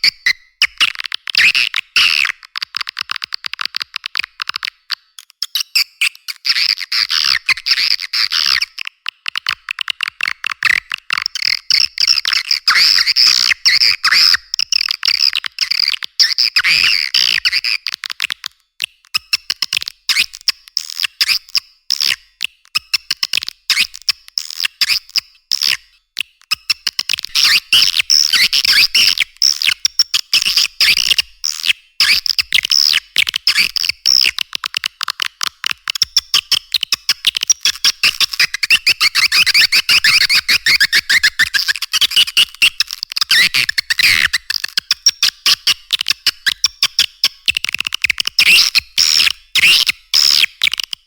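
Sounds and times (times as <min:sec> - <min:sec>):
swiftlet chirps and clicks: 0:35.9 - 0:47.0.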